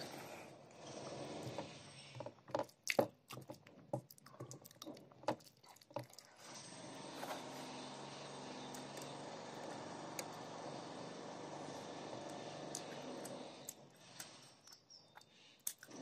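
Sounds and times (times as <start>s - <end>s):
chewing and mouth smacking: 2.6s - 6.4s, 14.6s - 16.0s.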